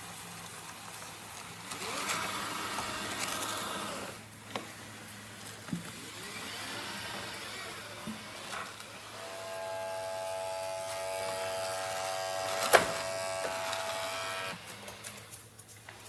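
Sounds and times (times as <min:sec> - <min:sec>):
robot vacuum motor whining: 0:01.7 - 0:04.2, 0:06.1 - 0:14.8.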